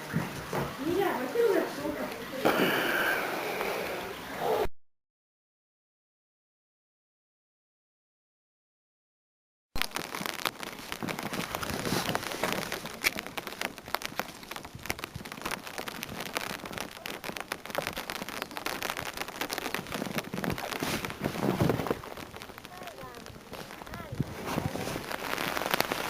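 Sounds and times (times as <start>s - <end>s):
heavy rain pelting hard surfaces: 0.0s - 4.7s, 9.8s - 26.0s.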